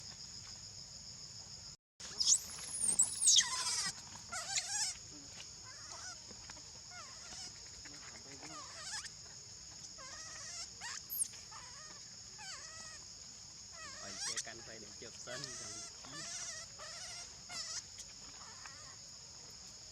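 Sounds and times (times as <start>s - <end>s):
high-pitched insect drone: 2.0s - 19.8s
gliding squealing calls: 2.1s - 4.9s, 10.0s - 11.8s, 13.8s - 14.7s.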